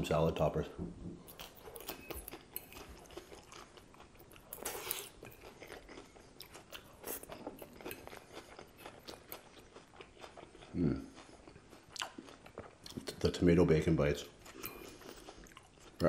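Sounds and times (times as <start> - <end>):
chewing crunchy lettuce: 1.3 - 13.4.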